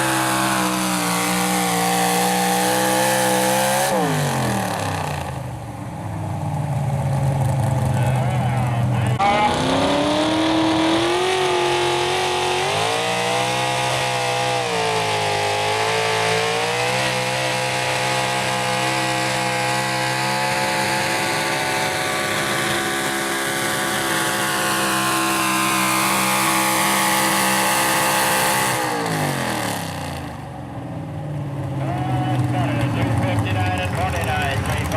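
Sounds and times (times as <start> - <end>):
truck engine at full throttle: 0.0 - 34.9.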